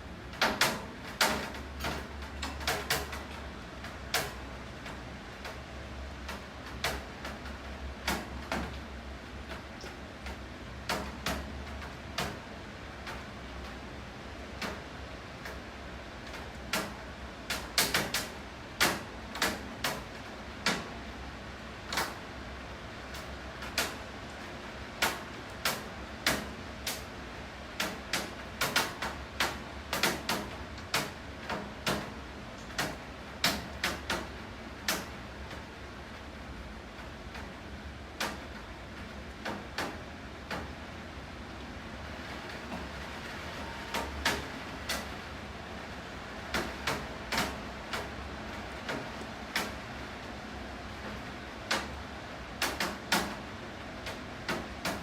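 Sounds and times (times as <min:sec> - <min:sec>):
rain hiss: 0:00.0 - 0:55.0.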